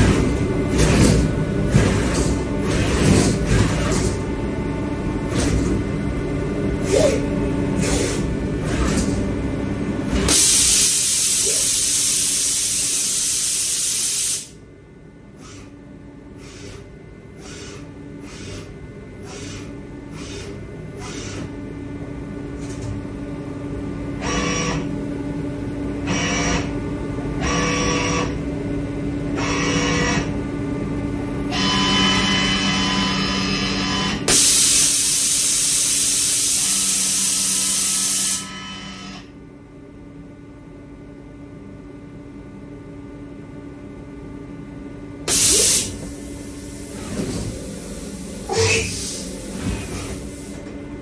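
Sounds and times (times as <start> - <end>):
machine hum: 0.0 - 13.6, 14.4 - 51.0
hissing machine noise bursts: 10.3 - 14.5, 34.3 - 38.4, 45.3 - 50.6
machine humming: 45.2 - 51.0.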